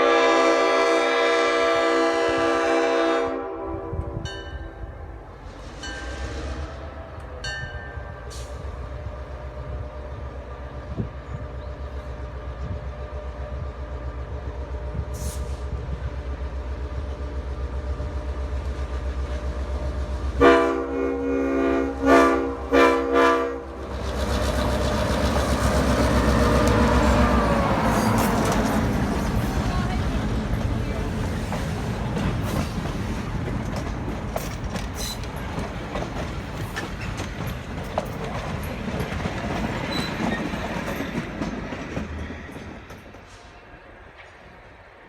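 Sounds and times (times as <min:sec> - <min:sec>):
train horn blasts: 0:00.0 - 0:05.1, 0:20.4 - 0:23.8, 0:26.1 - 0:28.4
diesel locomotive engine throbbing: 0:00.0 - 0:43.4.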